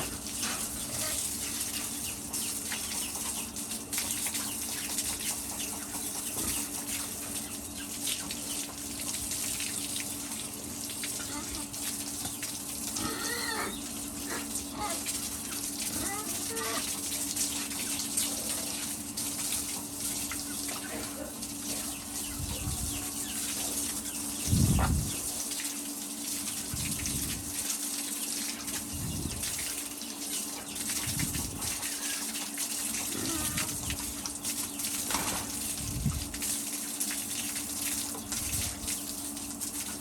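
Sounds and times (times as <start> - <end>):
running water rushing: 8.1 - 29.9.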